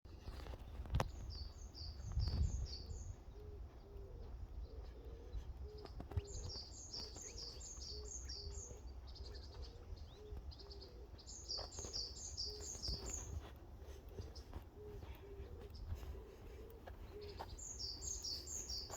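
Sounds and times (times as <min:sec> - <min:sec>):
low cooing bird call: 0:00.2 - 0:18.9
footsteps on forest floor: 0:05.8 - 0:18.9.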